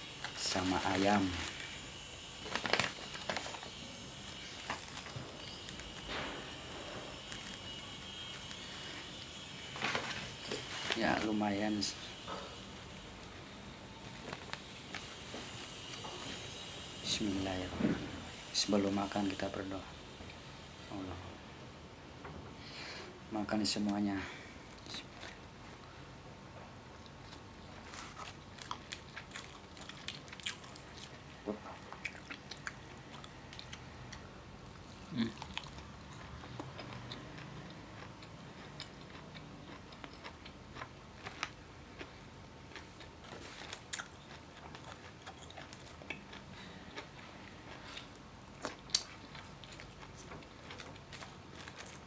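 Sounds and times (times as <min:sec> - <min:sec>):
person chewing food: 0:02.3 - 0:10.9, 0:24.7 - 0:25.9, 0:26.9 - 0:52.0.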